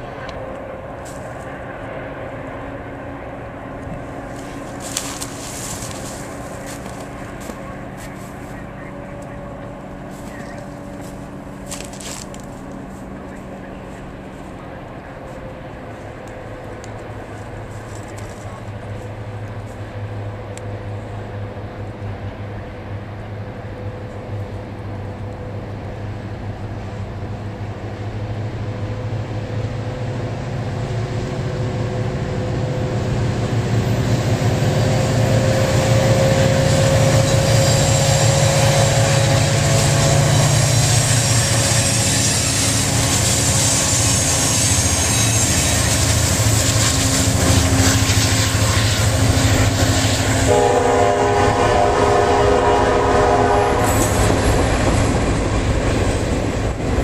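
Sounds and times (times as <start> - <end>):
diesel locomotive engine drone: 0.0 - 57.0
train wheels clattering on rails: 3.8 - 8.5, 31.8 - 51.2, 53.5 - 57.0
train horn: 34.2 - 54.5.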